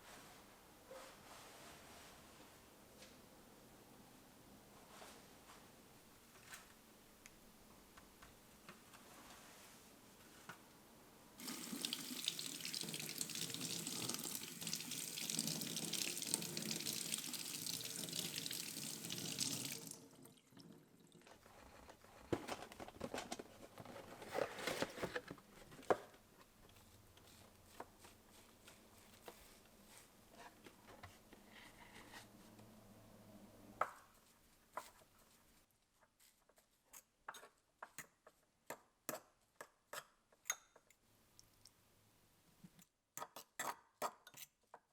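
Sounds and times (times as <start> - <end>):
knocks and rustles of handling: 21.2 - 32.3.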